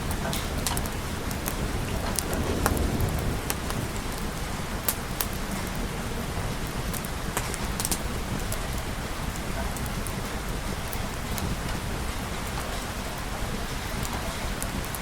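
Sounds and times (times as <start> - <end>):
steady rain: 0.0 - 15.0
low rumble: 1.0 - 6.4.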